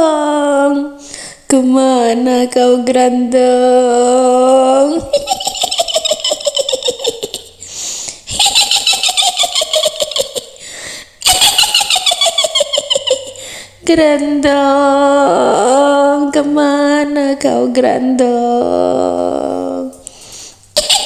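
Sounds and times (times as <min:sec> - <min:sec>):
woman speaking in witch voice: 0:00.0 - 0:05.1, 0:13.8 - 0:20.0
breathy hiss: 0:01.0 - 0:01.5, 0:07.6 - 0:08.3, 0:10.6 - 0:11.2, 0:20.0 - 0:20.8
high cackling witch laugh: 0:04.8 - 0:07.7, 0:08.3 - 0:13.5, 0:20.8 - 0:21.0.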